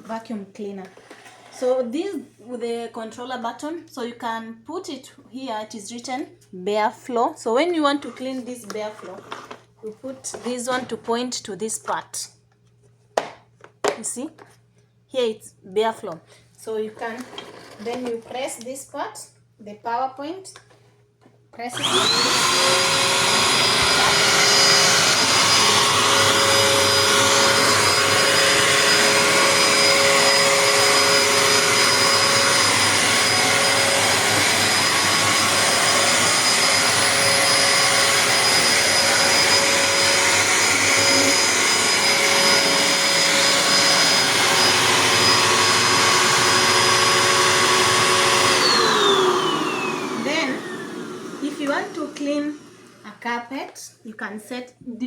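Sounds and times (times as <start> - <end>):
vacuum cleaner running: 21.7 - 53.2.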